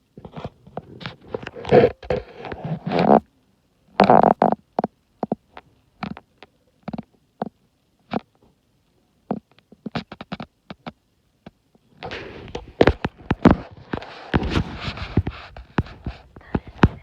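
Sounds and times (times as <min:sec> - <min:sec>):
rustling noise: 0:00.0 - 0:03.3, 0:11.8 - 0:17.0.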